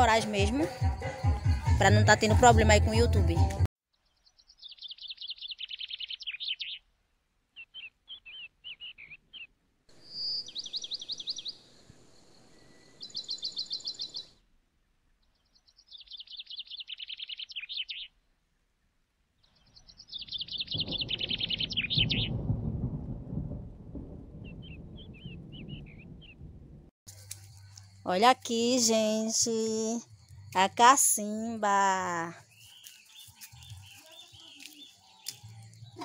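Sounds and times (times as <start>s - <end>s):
birds trilling chirps: 4.0s - 6.9s, 7.6s - 14.4s, 15.1s - 18.3s, 19.4s - 22.5s, 24.4s - 26.5s, 30.0s - 36.0s.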